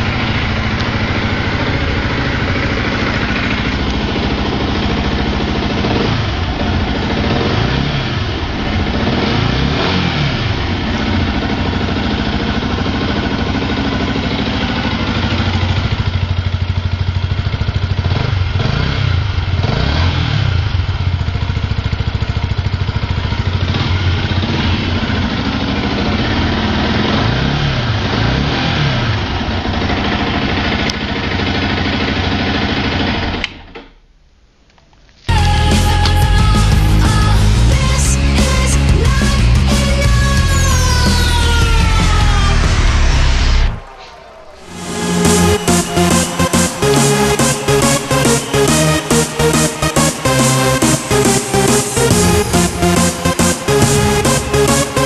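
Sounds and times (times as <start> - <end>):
motorcycle engine idling and revving: 0.0 - 33.9, 35.3 - 55.0.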